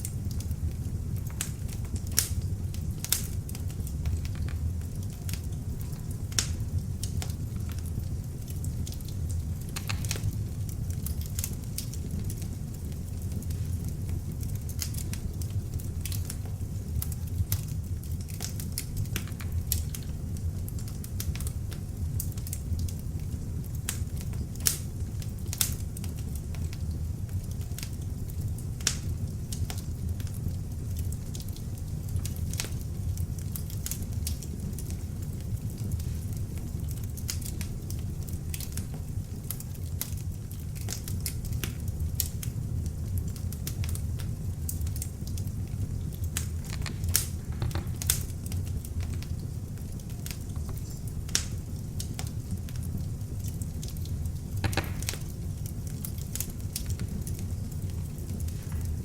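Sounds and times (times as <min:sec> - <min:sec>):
log fire crackling and popping: 0:00.0 - 0:59.0.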